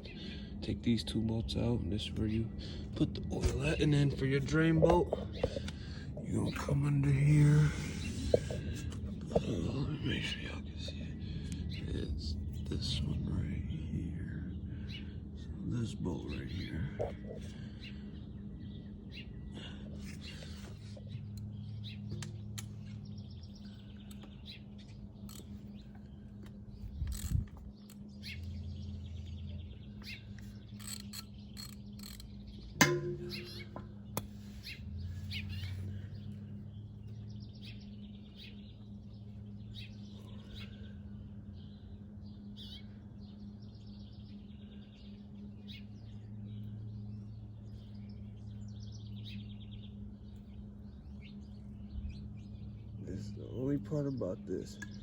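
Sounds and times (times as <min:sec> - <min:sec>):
birds chirping: 0:00.0 - 0:55.0
steady low hum: 0:00.0 - 0:55.0
sharp metal clank with ring: 0:32.8 - 0:33.9.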